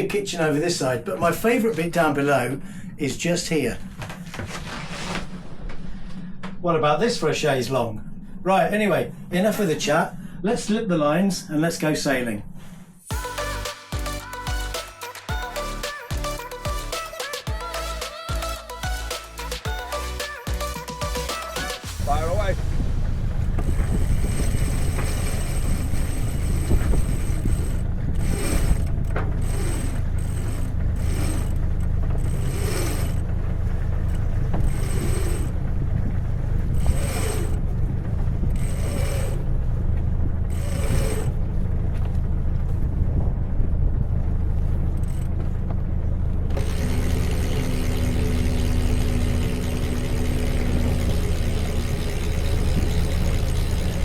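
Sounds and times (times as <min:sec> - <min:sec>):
diesel boat engine running: 0:00.0 - 0:11.3, 0:12.1 - 0:54.0
steady hum: 0:00.0 - 0:54.0
short creaking squeaks: 0:23.6 - 0:41.5.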